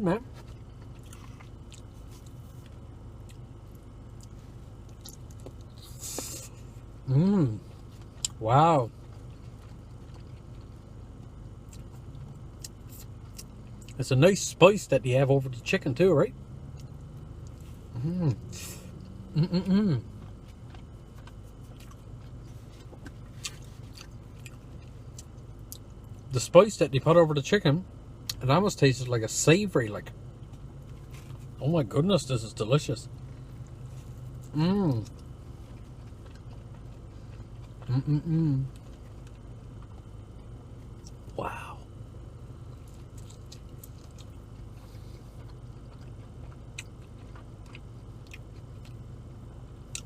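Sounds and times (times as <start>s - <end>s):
steady low hum: 0.0s - 50.0s
person chewing food: 0.3s - 14.0s, 16.7s - 26.3s, 33.2s - 41.8s, 42.6s - 49.1s.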